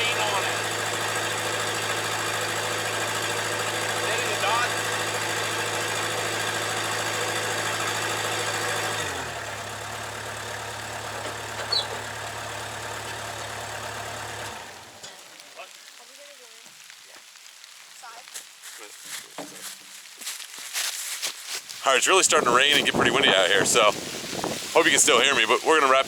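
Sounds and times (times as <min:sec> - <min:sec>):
diesel engine running: 0:00.0 - 0:15.7, 0:21.8 - 0:26.0.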